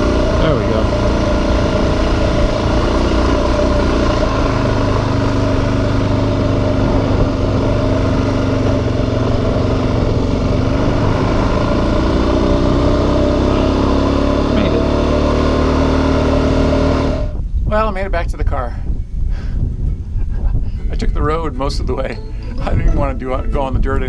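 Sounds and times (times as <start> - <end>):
motorcycle engine running: 0.0 - 17.5.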